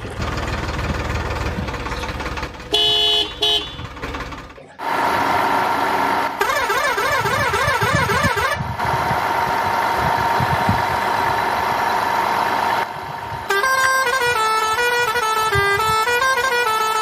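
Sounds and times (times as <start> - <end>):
engine-like hum: 0.0 - 17.0
electronic wailing siren: 6.4 - 8.7.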